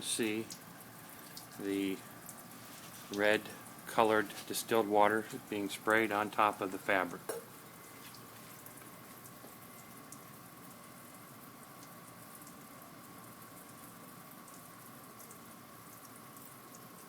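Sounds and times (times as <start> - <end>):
shower water spraying on fabric: 1.0 - 5.8.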